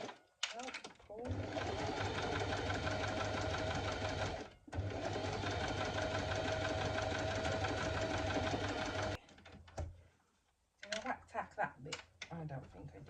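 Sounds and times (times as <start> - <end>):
electric sewing machine stitching: 1.2 - 9.2.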